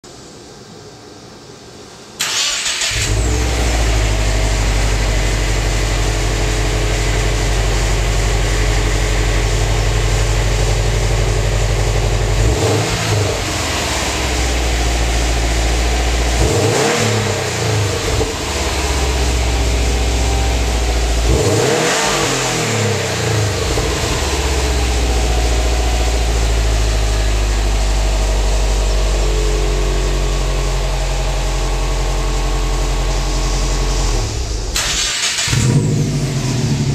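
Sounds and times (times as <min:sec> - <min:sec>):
car engine starting and idling: 0:02.0 - 0:36.9
engine revving: 0:12.0 - 0:30.4, 0:33.9 - 0:36.9.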